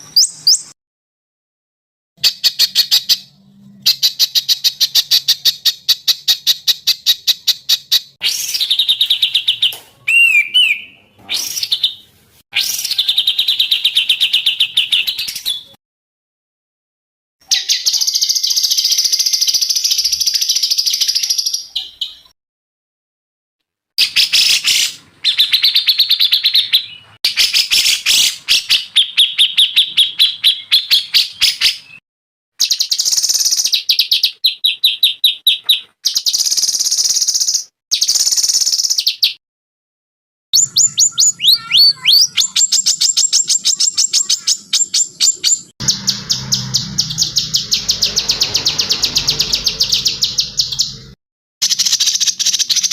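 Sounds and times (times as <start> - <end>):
songbird trilling: 40.6 - 51.0.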